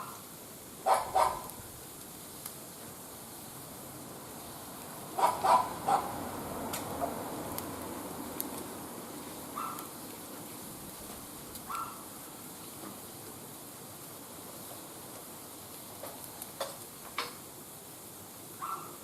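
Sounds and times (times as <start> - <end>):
dog barking: 0.8 - 1.5, 5.2 - 6.2, 9.6 - 9.9, 11.7 - 12.0, 18.6 - 19.0.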